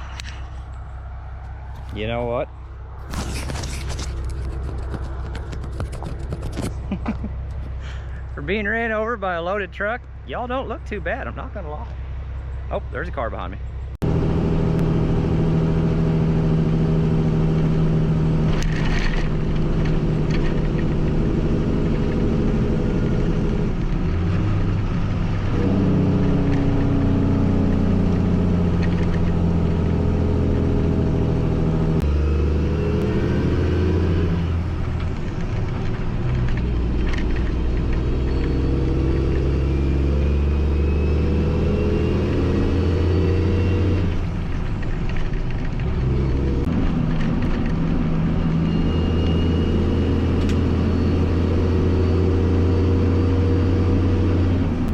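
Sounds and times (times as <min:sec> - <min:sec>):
diesel truck engine shifting gears: 0:00.0 - 0:54.9.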